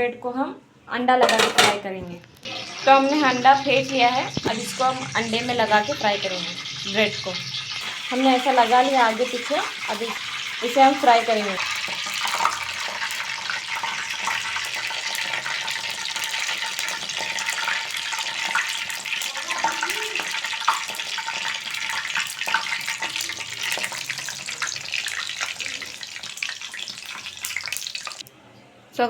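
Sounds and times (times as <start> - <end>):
bread sizzling with crackles: 2.4 - 28.3.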